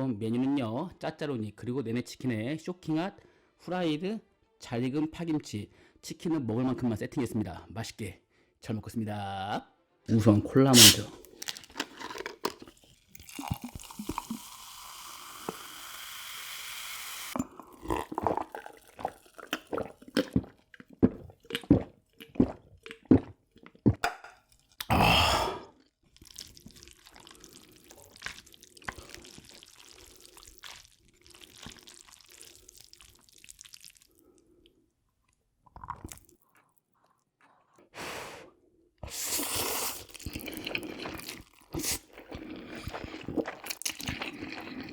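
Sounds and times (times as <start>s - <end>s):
cola fizzing in a glass: 10.7s - 20.6s, 26.2s - 34.3s
gulping and mouth clicks: 10.8s - 14.6s, 17.4s - 25.0s, 25.8s - 37.7s, 39.3s - 44.9s.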